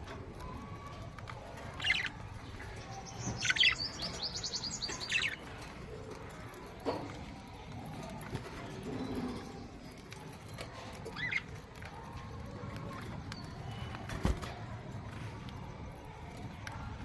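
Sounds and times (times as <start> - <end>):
low background noise: 0.0 - 17.0
budgerigar chirp: 3.4 - 5.4.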